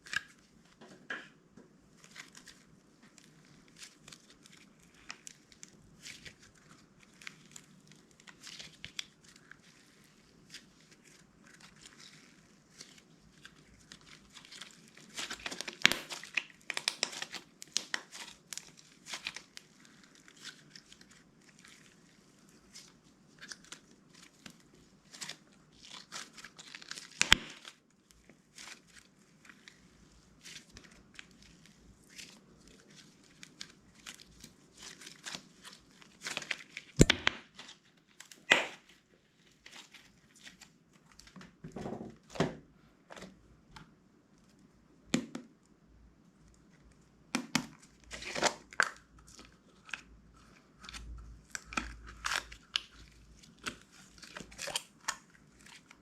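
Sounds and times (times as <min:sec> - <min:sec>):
slime crackling and popping: 0:03.2 - 0:27.8, 0:28.5 - 0:37.7, 0:47.3 - 0:56.0.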